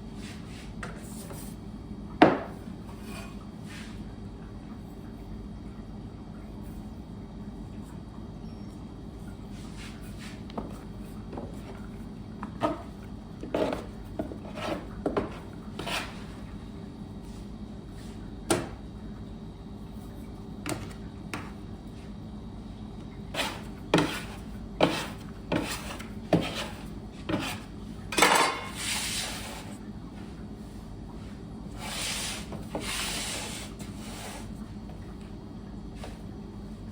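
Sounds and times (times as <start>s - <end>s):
low equipment hum: 0.0s - 36.9s
dish scraping: 23.4s - 29.7s
utensils and dishes clinking: 28.1s - 28.8s.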